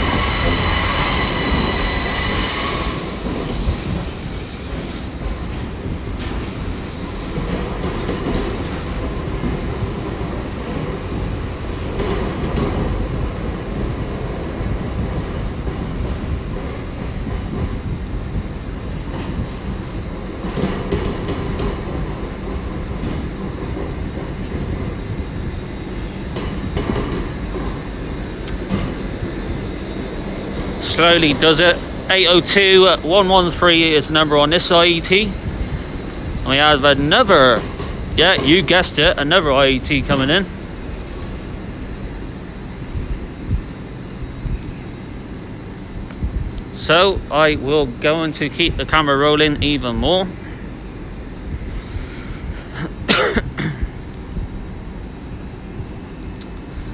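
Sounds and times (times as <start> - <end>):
train wheels clacking: 0.0 - 18.4, 19.0 - 25.4, 26.3 - 36.3
train rumbling: 0.0 - 56.9.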